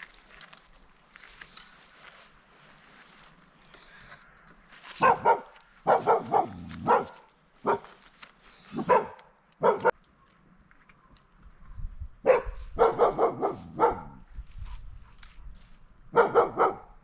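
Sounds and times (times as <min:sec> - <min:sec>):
dog barking: 0:05.0 - 0:08.0, 0:08.8 - 0:09.9, 0:12.2 - 0:14.2, 0:16.1 - 0:17.0.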